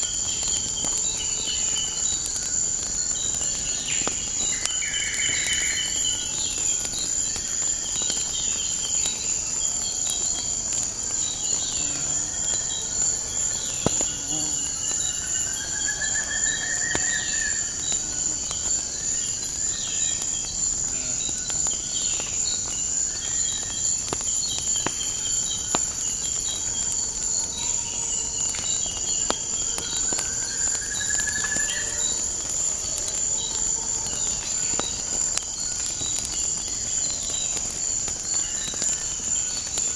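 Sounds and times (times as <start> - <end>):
insects trilling: 0.0 - 39.9
wood fire crackling: 0.0 - 39.9
long sweeping bird calls: 14.6 - 18.1, 25.1 - 37.7.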